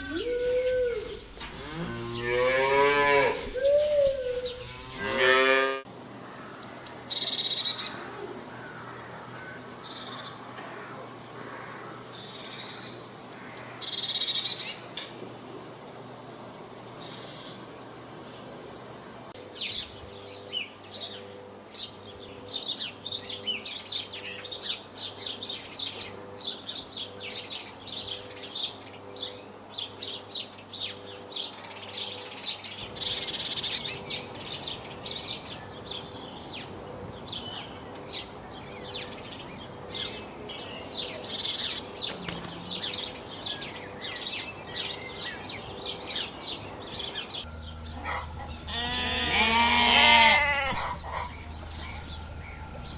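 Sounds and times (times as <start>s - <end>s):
songbirds chirping: 5.9s - 47.9s.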